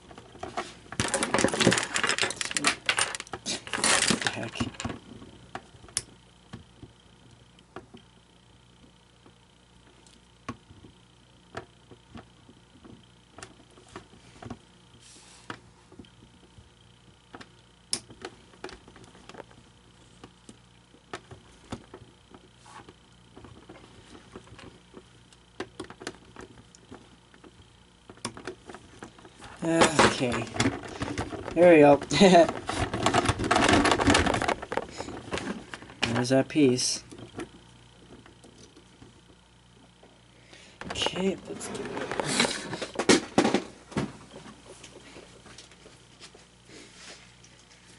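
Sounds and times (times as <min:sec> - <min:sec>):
faint steady hum: 0:00.0 - 0:47.9
clicks of handling plastic parts: 0:00.1 - 0:06.1.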